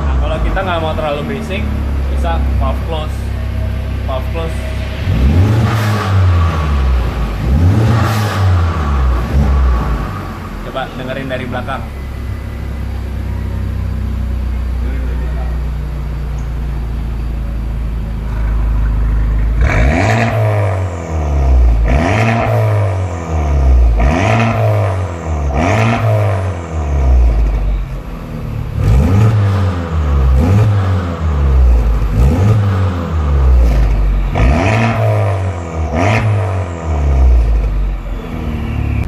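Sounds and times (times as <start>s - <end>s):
car engine idling and revving: 0.0s - 39.0s.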